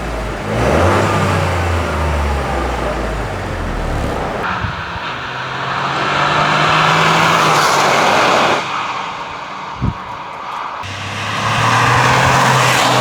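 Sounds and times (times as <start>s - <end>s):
chiptune car engine and exhaust: 0.0s - 8.2s, 10.8s - 13.0s.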